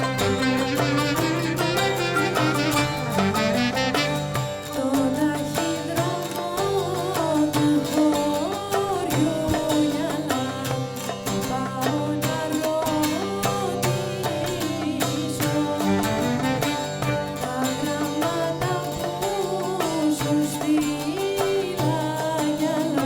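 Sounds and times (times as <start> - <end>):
ornamented wavering melody: 0.0 - 5.8, 15.8 - 17.8
plucked strings: 0.0 - 23.0.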